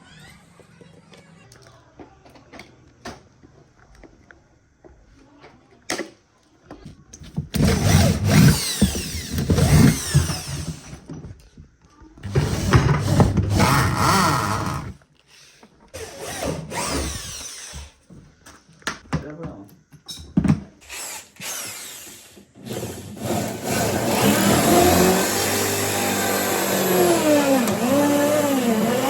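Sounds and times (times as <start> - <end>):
electric power tool running: 7.6 - 11.0, 12.2 - 15.0, 21.6 - 29.0.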